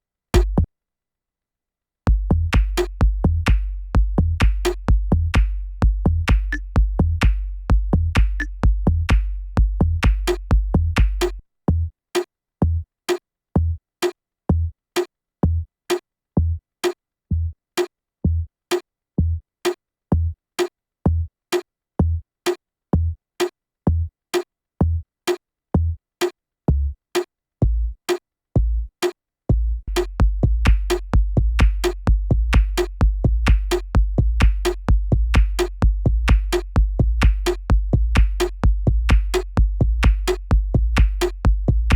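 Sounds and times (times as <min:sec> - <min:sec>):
deep bass layer: 0:00.4 - 0:00.7, 0:02.1 - 0:11.9, 0:16.4 - 0:16.6, 0:17.3 - 0:17.6, 0:18.3 - 0:18.5, 0:19.2 - 0:19.4, 0:20.1 - 0:20.4, 0:23.9 - 0:24.1, 0:25.8 - 0:26.0, 0:26.7 - 0:27.0, 0:27.6 - 0:28.0, 0:28.6 - 0:28.9, 0:29.5 - 0:41.9
techno kick drum and clicky hits: 0:00.4 - 0:00.7, 0:02.1 - 0:11.9, 0:12.6 - 0:12.8, 0:23.0 - 0:23.2, 0:27.6 - 0:27.9, 0:29.5 - 0:41.9.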